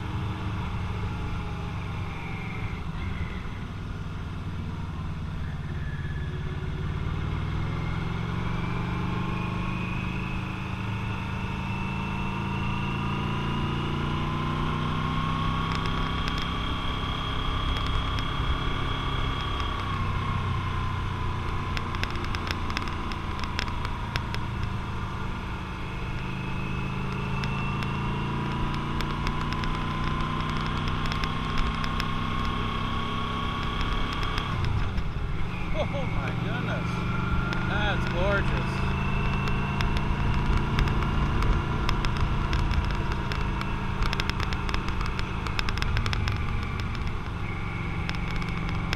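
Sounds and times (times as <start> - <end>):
motorcycle engine whine: 0.0 - 48.9
faint clicks: 39.2 - 48.9.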